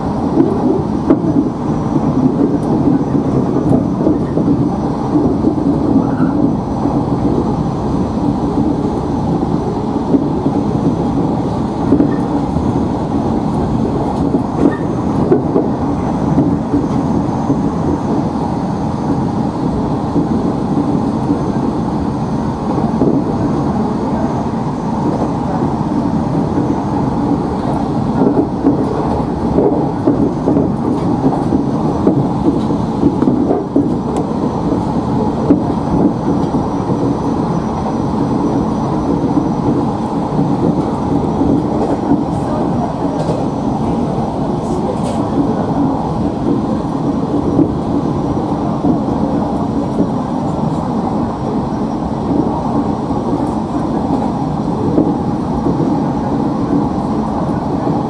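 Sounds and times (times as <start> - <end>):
wheels clicking over rails: 0.0 - 18.3, 25.0 - 58.0
train interior rumble: 0.0 - 58.0.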